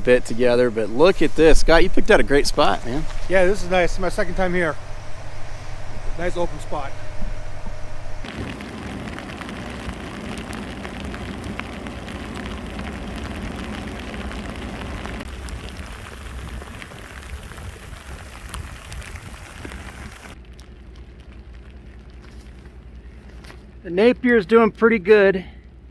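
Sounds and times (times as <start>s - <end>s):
blowing snow ticking: 0.0s - 20.4s
wind rumbling on microphone: 0.0s - 23.4s.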